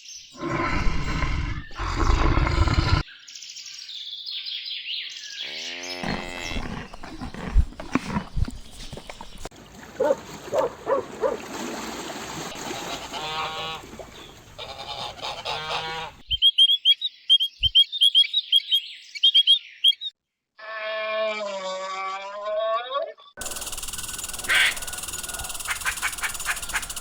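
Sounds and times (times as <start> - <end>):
long drawn-out animal call: 0.4 - 3.0, 5.4 - 8.2, 20.6 - 27.0
geese honking: 12.8 - 16.2, 24.4 - 27.0
high bird chirps: 16.2 - 20.1.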